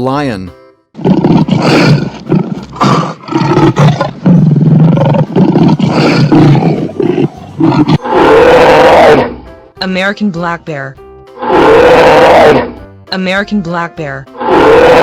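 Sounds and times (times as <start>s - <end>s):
lion roaring: 1.0s - 9.4s, 11.4s - 12.8s, 14.4s - 15.0s.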